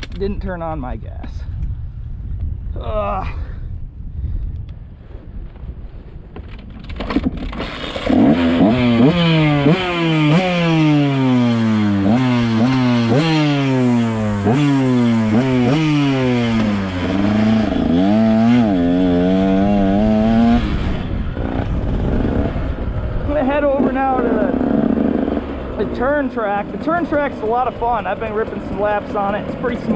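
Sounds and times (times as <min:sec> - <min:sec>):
dirt bike engine revving: 0:07.5 - 0:29.9.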